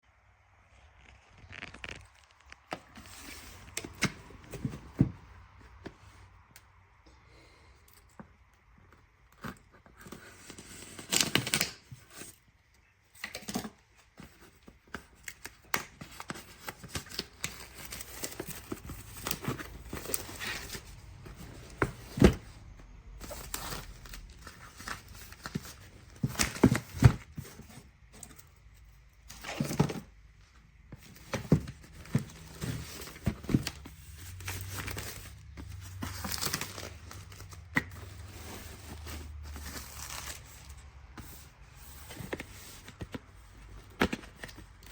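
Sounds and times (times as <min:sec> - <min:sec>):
packaging crinkling and tearing: 0:00.6 - 0:04.1, 0:31.8 - 0:41.2.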